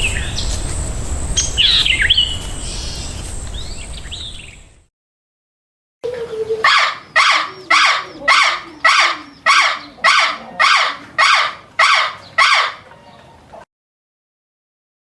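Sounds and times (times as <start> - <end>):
harsh animal call: 6.0 - 12.9.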